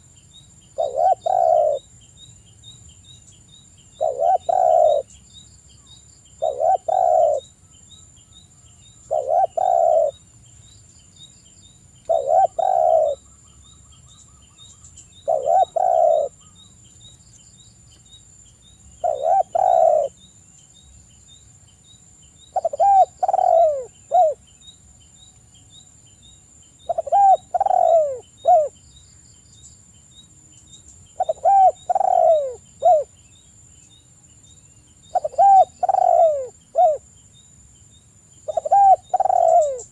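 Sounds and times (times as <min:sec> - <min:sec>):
dove cooing: 0:00.8 - 0:01.8, 0:04.0 - 0:05.1, 0:06.4 - 0:07.5, 0:09.1 - 0:10.2, 0:12.1 - 0:13.2, 0:15.2 - 0:16.6, 0:19.0 - 0:20.2, 0:22.5 - 0:24.4, 0:26.9 - 0:28.8, 0:31.2 - 0:33.1, 0:35.1 - 0:37.0, 0:38.5 - 0:39.9.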